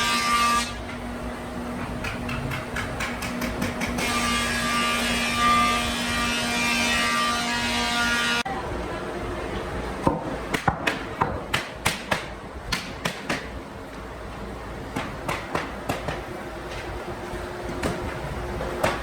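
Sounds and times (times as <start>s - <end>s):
hammer striking wood: 10.1s - 13.5s, 15.0s - 16.2s.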